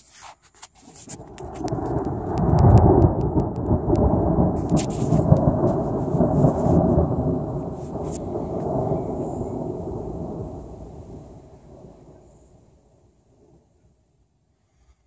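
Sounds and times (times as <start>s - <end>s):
rain: 0.8s - 14.3s
rolling thunder: 1.2s - 13.7s
sharp ticks: 1.4s - 4.1s.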